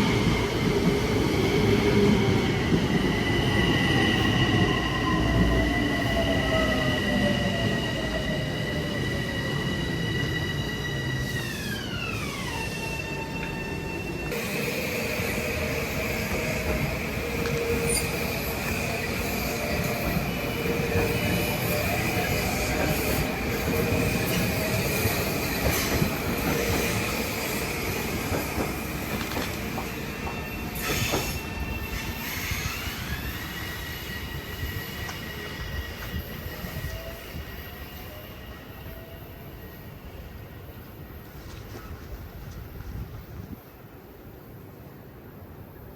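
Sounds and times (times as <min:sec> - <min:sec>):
train wheels squealing: 0:00.0 - 0:42.0
train rumble and clatter: 0:00.0 - 0:45.9.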